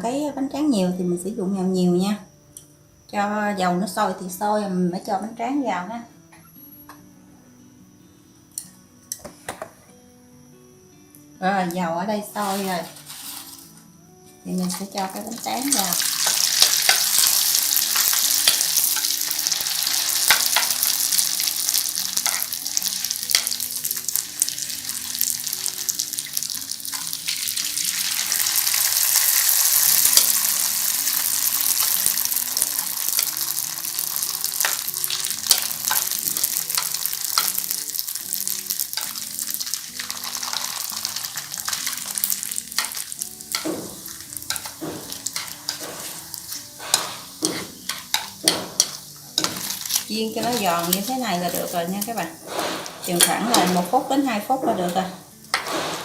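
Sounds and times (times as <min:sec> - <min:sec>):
rice paper sizzling in hot oil: 0:12.2 - 0:56.0.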